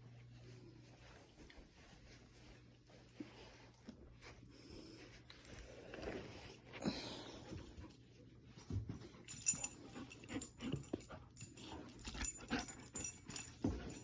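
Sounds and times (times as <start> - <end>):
light jingles: 8.5 - 14.0.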